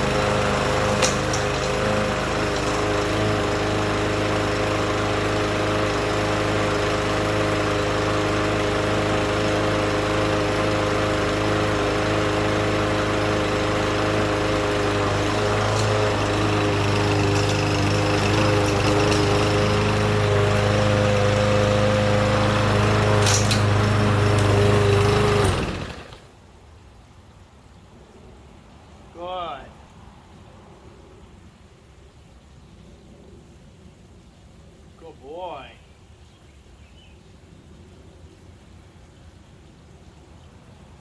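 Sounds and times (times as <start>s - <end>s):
lawnmower engine running: 0.0s - 26.3s.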